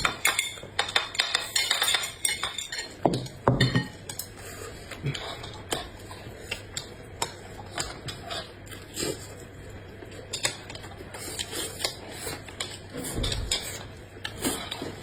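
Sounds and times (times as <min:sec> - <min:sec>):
utensils clinking against dishes: 0:00.0 - 0:08.5
chewing: 0:04.1 - 0:15.0.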